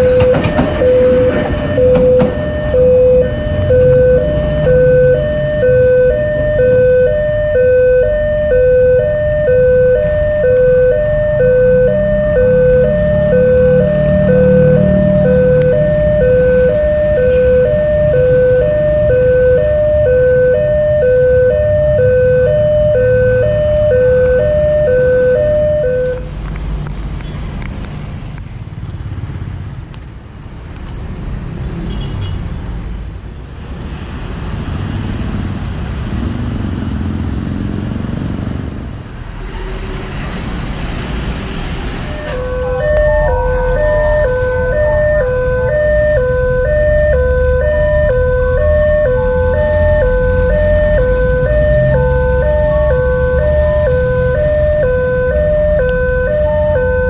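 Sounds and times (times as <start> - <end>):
level crossing two-tone alarm: 0.0 - 26.3, 42.1 - 57.0
low traffic rumble: 0.0 - 57.0
passing vehicle rush: 0.0 - 57.0.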